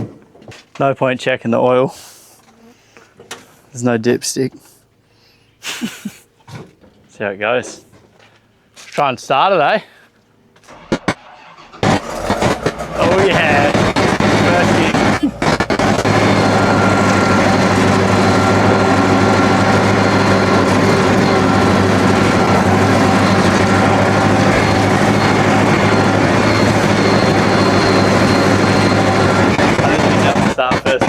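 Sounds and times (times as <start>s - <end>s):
diesel engine running: 10.7s - 31.0s.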